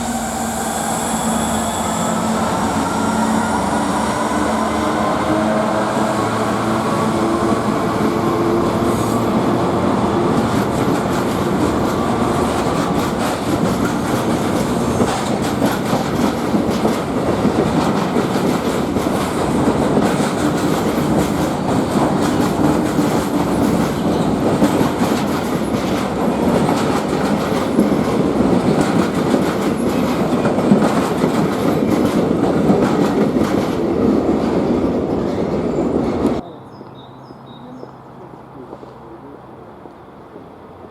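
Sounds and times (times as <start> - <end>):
locomotive engine: 0.0 - 36.4
train cars rumbling: 0.0 - 36.4
wheels clicking over rail joints: 10.4 - 36.4.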